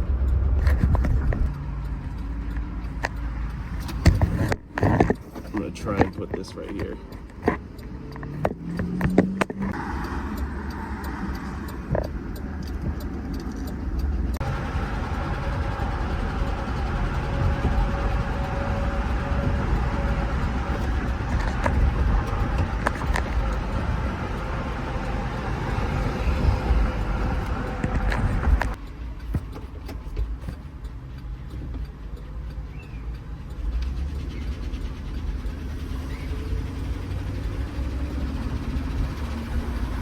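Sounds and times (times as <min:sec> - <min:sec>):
cabin and road noise: 0:00.0 - 0:40.0
engine rod knocking: 0:11.7 - 0:40.0.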